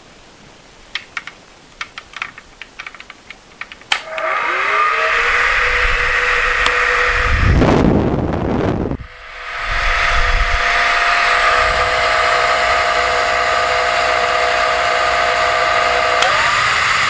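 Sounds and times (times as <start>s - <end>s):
switch clicking: 1.0s - 4.3s, 6.6s - 6.8s
small appliance motor whining: 4.0s - 7.8s, 8.9s - 17.0s
rushing air: 4.0s - 17.0s
low rumble: 5.0s - 13.4s.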